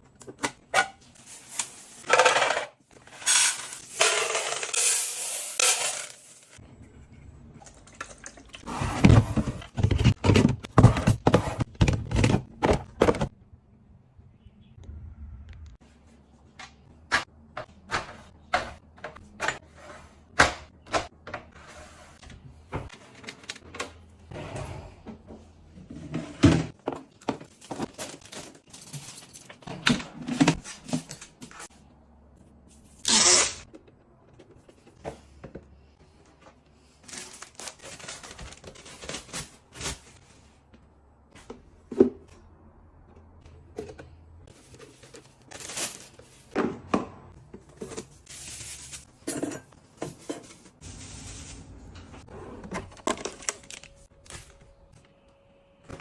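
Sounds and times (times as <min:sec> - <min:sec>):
items handled and set down: 0:01.3 - 0:06.4, 0:08.9 - 0:13.3, 0:25.1 - 0:31.7, 0:43.5 - 0:54.8.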